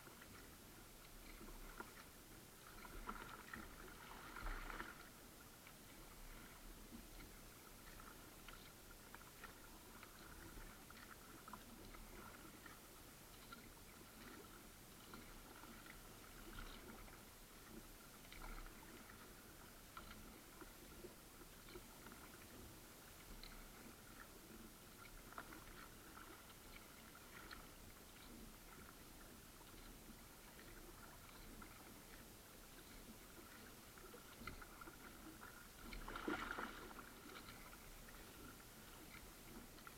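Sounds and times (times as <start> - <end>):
paddle splashes and drips: 0.0 - 39.9.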